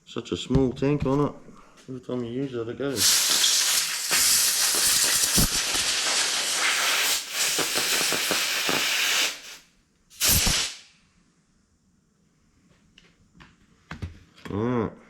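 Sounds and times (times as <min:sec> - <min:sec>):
compressed air blow gun hissing: 0:02.9 - 0:10.9.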